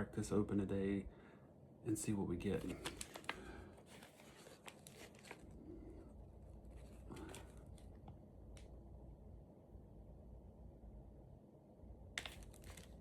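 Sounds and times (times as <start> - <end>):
plastic wrapper crinkling and tearing: 2.6 - 5.6, 12.2 - 13.0.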